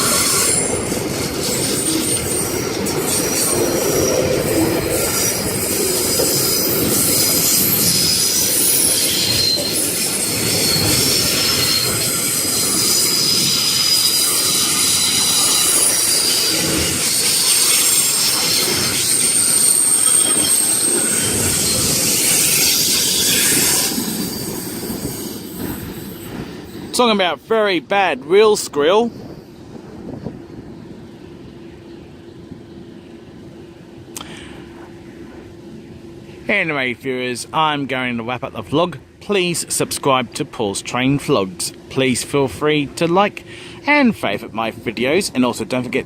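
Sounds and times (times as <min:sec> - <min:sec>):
high wheel squeal: 0:00.0 - 0:27.0
train wheels rumbling on rails: 0:00.0 - 0:46.0.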